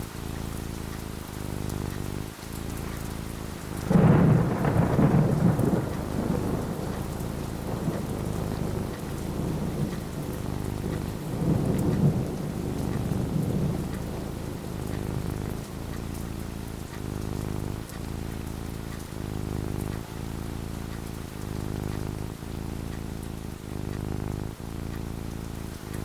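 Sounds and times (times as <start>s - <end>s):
rain falling: 0.0s - 26.0s
thunder rumbling: 3.5s - 20.5s.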